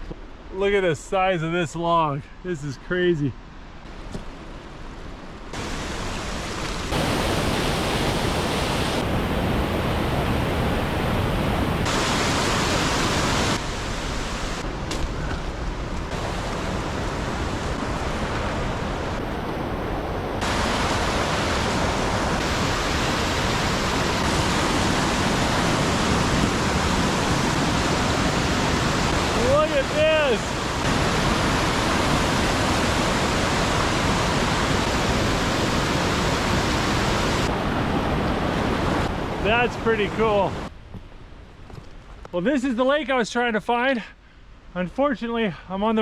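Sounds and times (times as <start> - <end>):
running water rushing: 5.5 - 14.8, 15.6 - 40.7.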